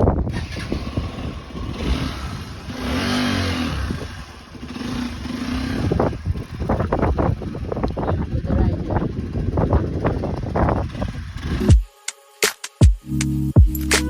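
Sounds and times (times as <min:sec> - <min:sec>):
wind on microphone: 0:00.0 - 0:11.8
motorcycle engine revving: 0:00.0 - 0:11.9.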